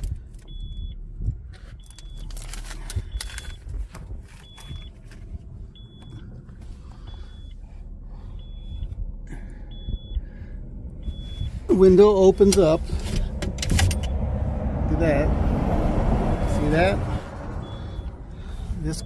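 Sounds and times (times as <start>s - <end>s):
high warning beep: 7.0s - 7.6s, 8.3s - 9.0s, 9.6s - 10.3s, 11.0s - 11.9s, 16.4s - 18.2s.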